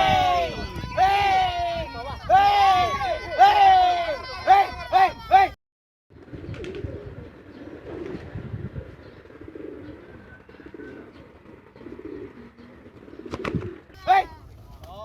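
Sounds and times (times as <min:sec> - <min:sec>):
pigeons cooing: 0:06.2 - 0:14.3.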